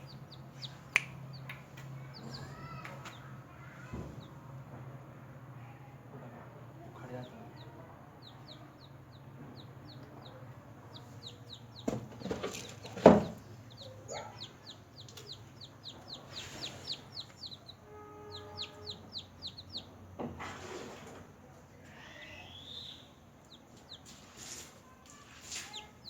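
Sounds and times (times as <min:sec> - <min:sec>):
chicks peeping: 0:00.0 - 0:04.6, 0:06.7 - 0:20.2, 0:21.9 - 0:26.0
loud knocks: 0:11.8 - 0:13.4.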